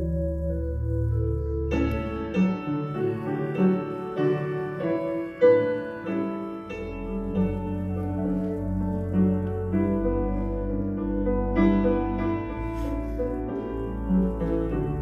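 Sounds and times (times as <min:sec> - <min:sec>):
deep bass line: 0:00.0 - 0:02.0
slow keyboard chords: 0:00.0 - 0:15.0.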